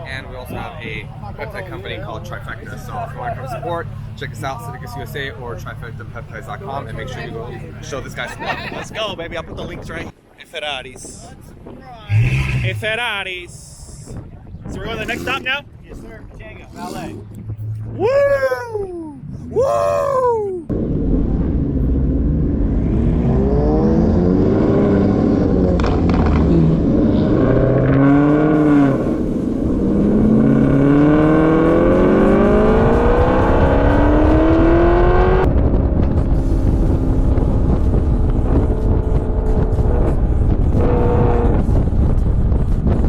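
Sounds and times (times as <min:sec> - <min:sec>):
sports car engine accelerating: 0:21.3 - 0:42.2.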